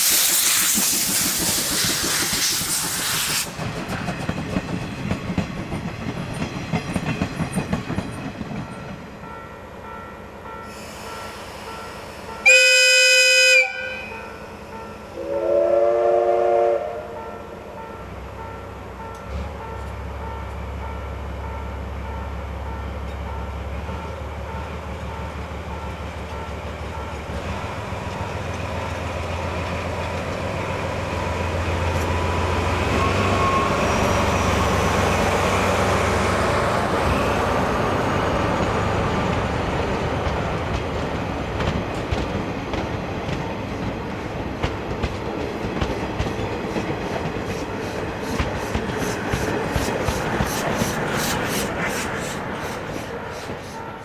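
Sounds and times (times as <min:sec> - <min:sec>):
low train rumble: 0:00.0 - 0:54.0
rhythmic train running noise: 0:00.0 - 0:54.0
locomotive whistle blasts: 0:10.7 - 0:14.5, 0:15.2 - 0:17.4, 0:32.9 - 0:34.3.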